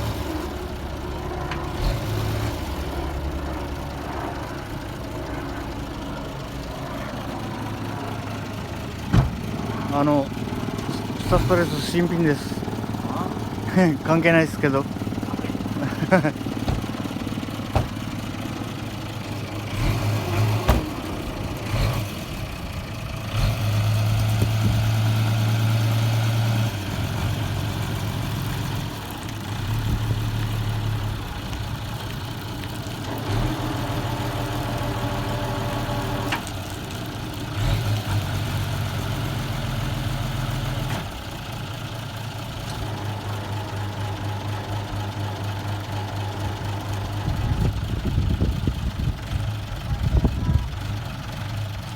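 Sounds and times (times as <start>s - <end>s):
vehicle engine idling: 0.0s - 51.9s
sharp clunks: 9.1s - 9.5s, 16.6s - 17.1s, 17.7s - 18.1s.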